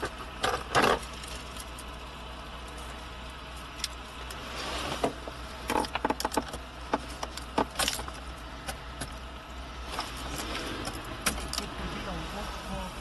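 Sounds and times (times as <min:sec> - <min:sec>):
sharp clicks and knocks: 0:05.0 - 0:09.2.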